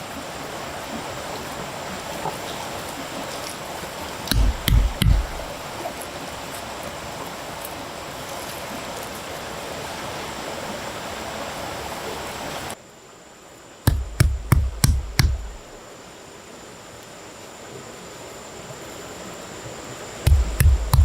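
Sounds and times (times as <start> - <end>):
flowing water rushing: 0.0 - 12.8, 13.9 - 15.8, 17.8 - 21.0
sharp knocks: 4.3 - 5.5, 13.9 - 15.8, 20.3 - 21.0.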